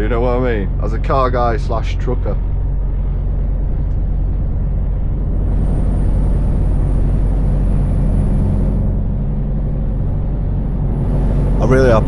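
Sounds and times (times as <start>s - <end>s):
truck engine drone from cab: 0.0s - 12.0s.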